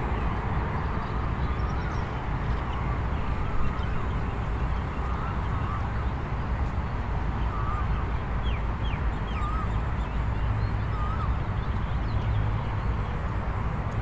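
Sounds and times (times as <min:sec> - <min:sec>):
bird wavering call: 0:07.5 - 0:07.9.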